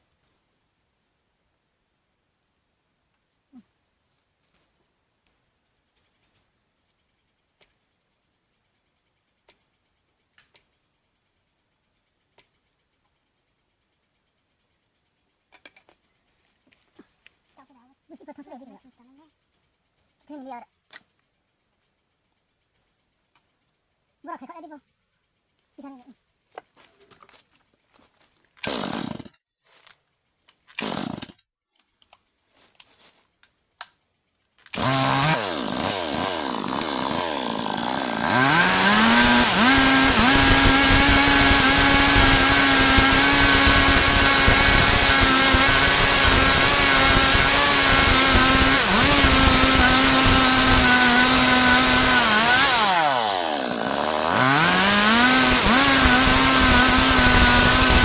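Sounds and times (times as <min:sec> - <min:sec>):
chainsaw revving: 0:28.6 - 0:29.3, 0:30.8 - 0:31.4, 0:34.7 - 0:58.0.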